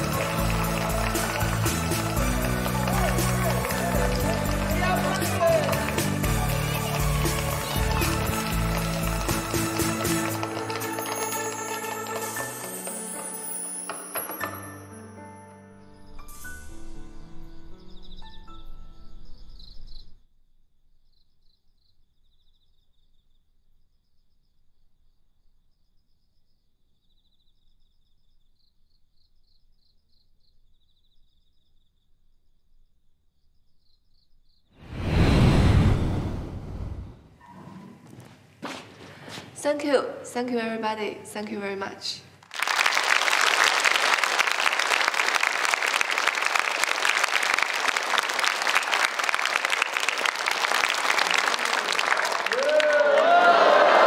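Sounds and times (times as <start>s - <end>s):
audience applauding: 0.0s - 13.0s, 42.4s - 54.0s
crickets chirping: 17.3s - 34.7s.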